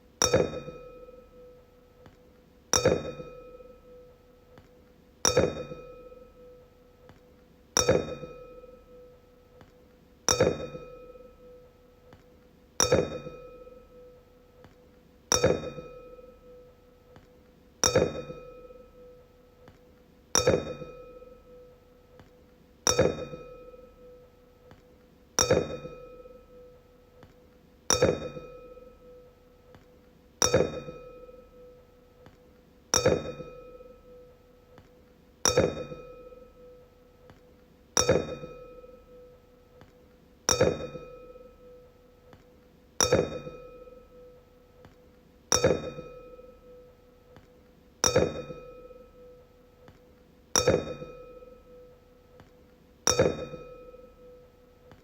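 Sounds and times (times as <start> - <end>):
wine glass tapped ringing: 0.2 - 1.6, 2.8 - 4.1, 5.3 - 6.6, 7.8 - 9.1, 10.3 - 11.6, 12.8 - 14.2, 15.3 - 16.6, 17.8 - 19.2, 20.4 - 21.7, 22.9 - 24.2, 25.4 - 26.7, 27.9 - 29.3, 30.4 - 31.8, 33.0 - 34.3, 35.5 - 36.8, 38.0 - 39.4, 40.5 - 41.9, 43.0 - 44.4, 45.5 - 46.9, 48.0 - 49.4, 50.6 - 52.0, 53.1 - 54.4.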